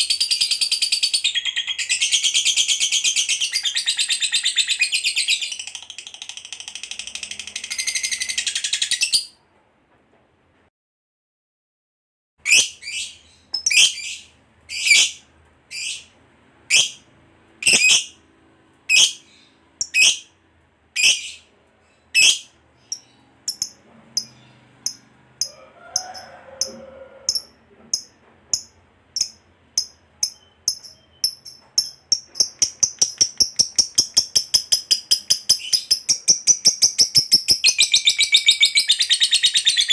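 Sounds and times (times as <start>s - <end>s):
bird chirping and trilling: 0.0s - 9.4s, 12.4s - 18.2s, 18.9s - 20.4s, 21.0s - 39.9s
lovebird chattering: 19.8s - 20.3s, 21.0s - 21.4s, 22.1s - 25.5s, 26.6s - 39.9s.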